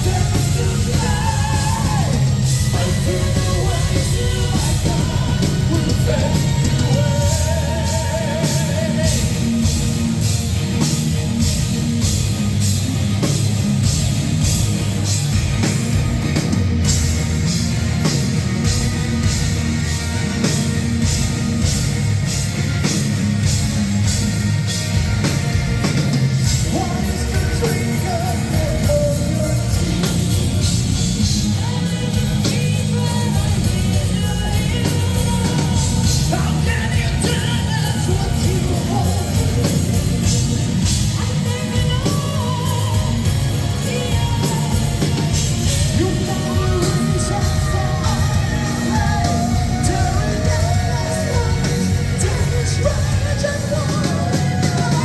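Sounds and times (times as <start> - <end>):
singing: 0.0 - 9.8, 26.5 - 55.0
metal band playing live: 0.0 - 55.0
rapid drum strokes: 0.0 - 55.0.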